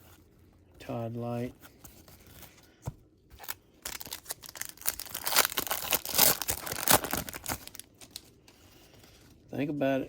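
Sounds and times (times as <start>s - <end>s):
wrapper tearing and crinkling: 3.4s - 8.2s.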